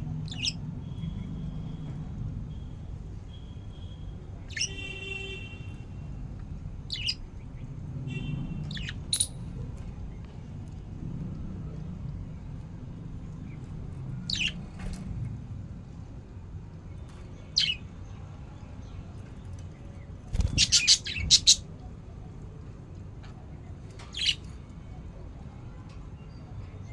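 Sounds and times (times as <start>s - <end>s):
budgerigars chirping: 0.3s - 0.6s, 6.9s - 7.2s, 14.3s - 14.6s, 20.4s - 21.6s, 24.2s - 24.4s
buzzy bird calls: 20.3s - 21.7s.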